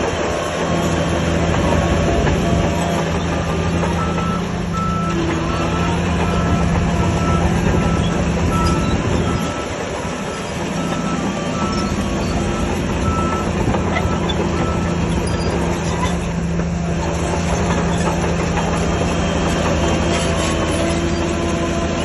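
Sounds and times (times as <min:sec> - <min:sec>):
diesel engine running: 0:00.0 - 0:22.0
reversing alarm beeping: 0:03.7 - 0:15.6.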